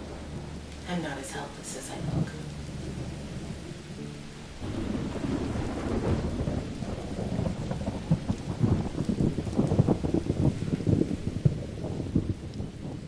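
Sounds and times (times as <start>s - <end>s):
rolling thunder rumble: 0.0s - 13.0s
steady rain: 0.0s - 13.0s.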